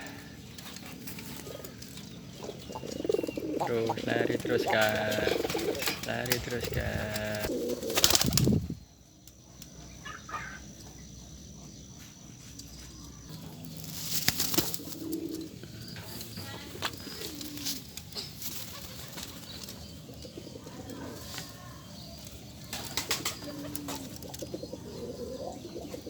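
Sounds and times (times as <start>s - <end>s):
pigeons cooing: 0.0s - 8.9s, 13.9s - 26.0s
pigeons flapping wings: 3.0s - 8.6s, 13.9s - 15.4s, 16.8s - 19.8s, 22.6s - 24.4s.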